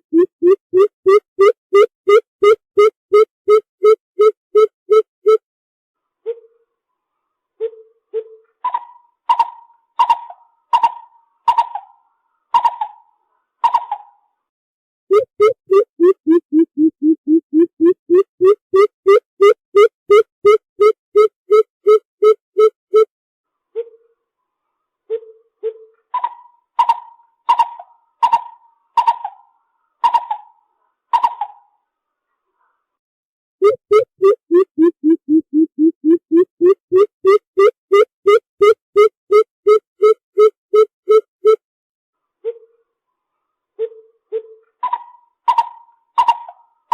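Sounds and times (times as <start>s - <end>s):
bird calling hollow notes: 15.1s - 23.1s, 33.6s - 41.6s.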